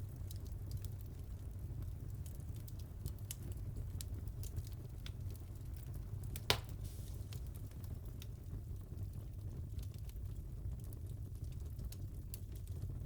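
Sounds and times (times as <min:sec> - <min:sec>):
low rumble of flames: 0:00.0 - 0:13.0
wood fire crackling: 0:00.0 - 0:13.0
loud pop of fire: 0:06.4 - 0:07.8.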